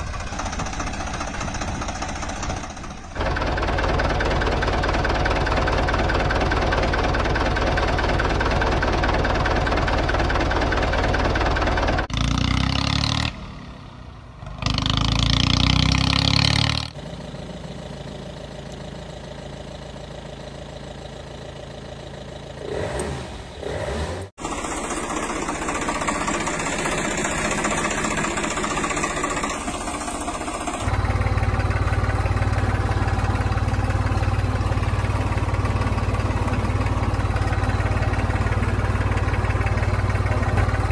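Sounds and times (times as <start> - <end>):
tractor engine idling and revving: 0.0 - 40.9.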